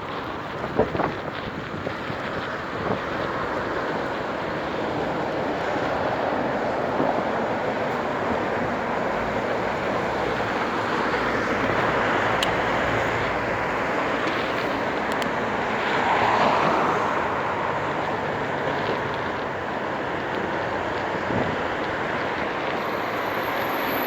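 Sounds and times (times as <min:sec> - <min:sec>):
road noise: 0:00.0 - 0:24.0
rushing wind: 0:00.0 - 0:24.0.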